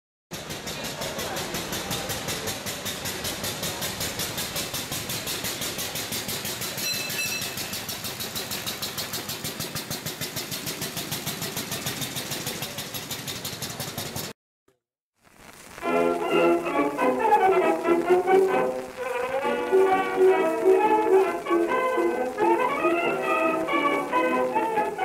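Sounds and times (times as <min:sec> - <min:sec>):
single-cylinder engine chuffing: 0:00.3 - 0:14.4.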